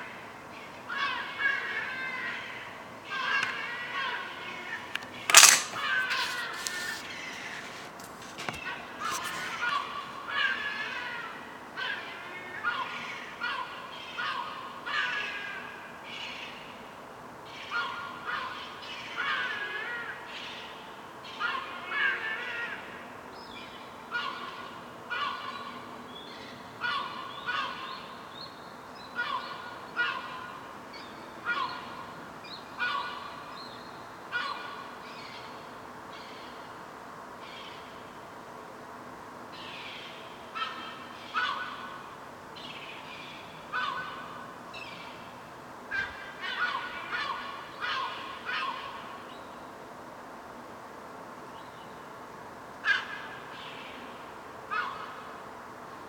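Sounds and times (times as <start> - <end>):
gulls calling: 39.6 - 49.5.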